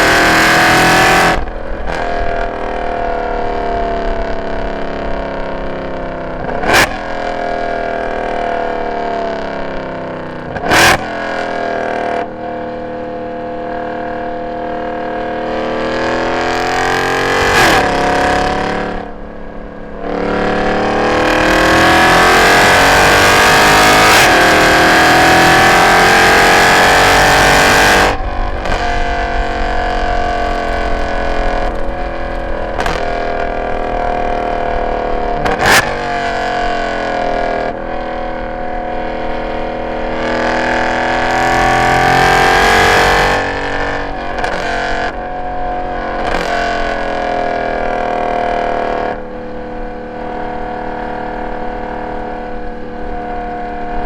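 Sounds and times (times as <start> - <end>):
car engine revving: 0.0 - 54.0
exhaust crack: 26.1 - 41.6, 42.2 - 48.2.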